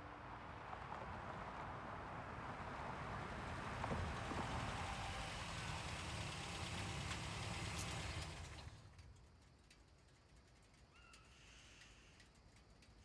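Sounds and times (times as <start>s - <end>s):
car engine running: 3.4s - 8.8s
faint clicks: 8.8s - 13.0s.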